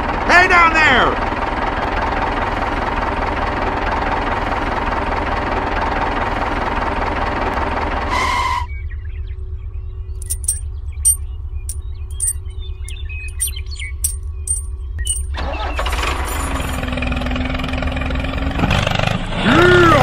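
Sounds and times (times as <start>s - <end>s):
engine pulling under load: 14.3s - 20.0s.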